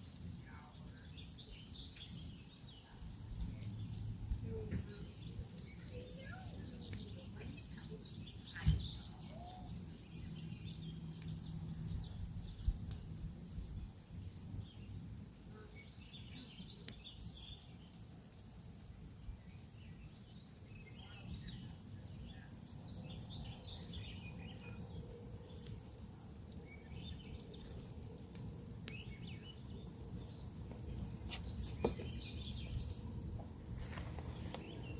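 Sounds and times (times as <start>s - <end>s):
campfire crackling and popping: 0.0s - 34.9s
small birds chirping: 0.0s - 34.9s.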